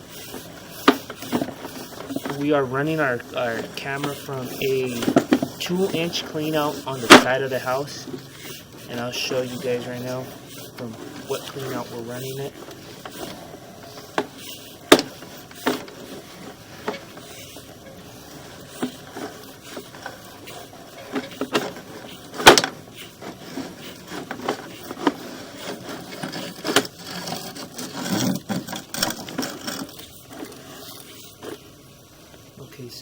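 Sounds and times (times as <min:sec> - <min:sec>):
camera handling knocks and rubbing: 0:00.1 - 0:31.6.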